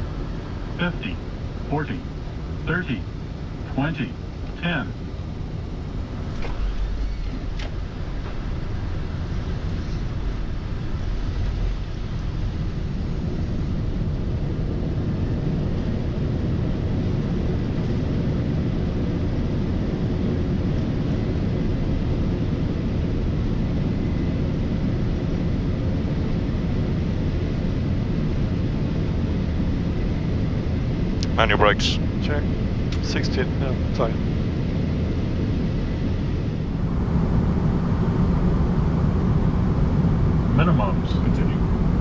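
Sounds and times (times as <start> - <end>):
aircraft rolling on runway rumble: 0.0 - 42.0.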